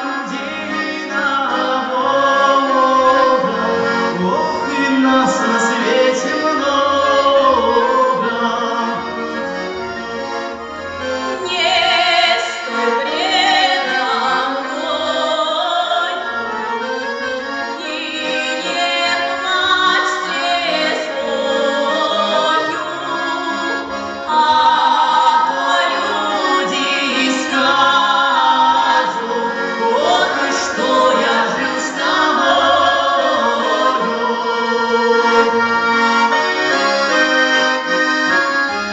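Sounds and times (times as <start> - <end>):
man and woman singing: 0.0 - 9.1, 17.8 - 23.6, 24.3 - 35.3
accordion: 0.0 - 38.9.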